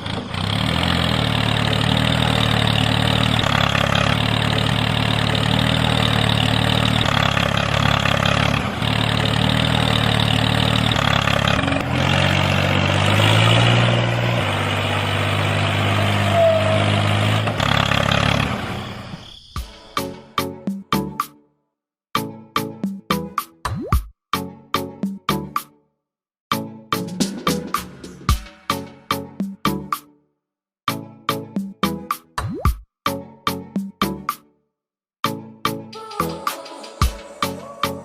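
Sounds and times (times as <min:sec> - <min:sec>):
small tractor engine running: 0:00.0 - 0:19.2.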